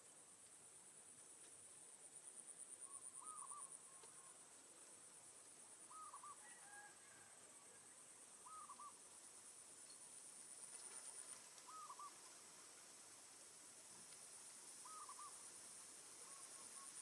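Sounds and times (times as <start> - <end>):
faint bird call: 2.8 - 4.4, 5.9 - 9.0, 11.6 - 12.2, 14.8 - 15.4, 16.2 - 17.0.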